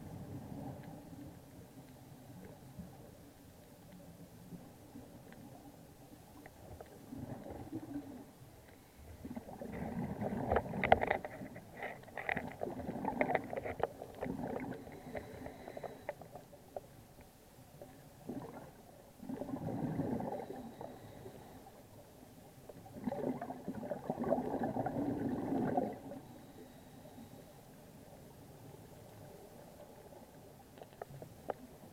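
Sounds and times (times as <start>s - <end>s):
quiet breaths: 0.0s - 31.9s
underwater exhaled bubbles rushing: 6.8s - 8.3s, 9.1s - 11.4s, 12.3s - 16.0s, 18.2s - 21.3s, 22.8s - 26.4s.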